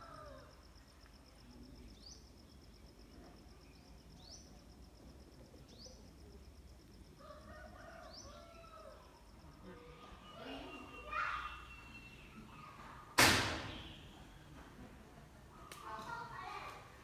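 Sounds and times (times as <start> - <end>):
bird chirping: 9.7 - 13.0, 13.7 - 14.5.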